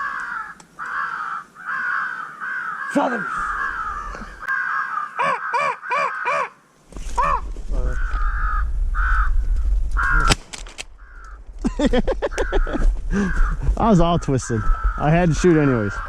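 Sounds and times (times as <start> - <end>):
crows cawing: 0.0 - 11.5, 12.2 - 13.8, 14.4 - 16.0.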